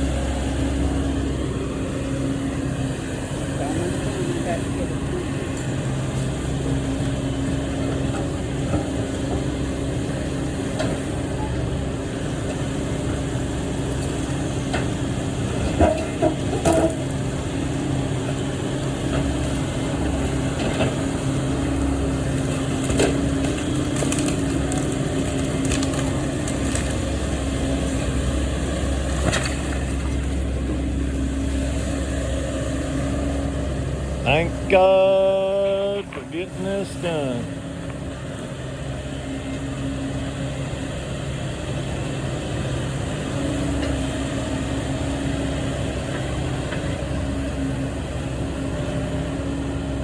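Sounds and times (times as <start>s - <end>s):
heavy machine engine running: 0.0s - 50.0s
timber cracking and splintering: 22.8s - 27.1s.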